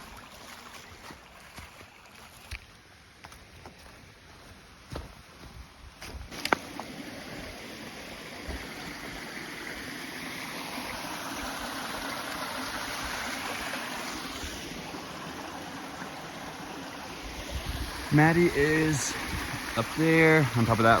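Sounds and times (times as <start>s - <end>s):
waterfall rushing: 6.3s - 21.0s.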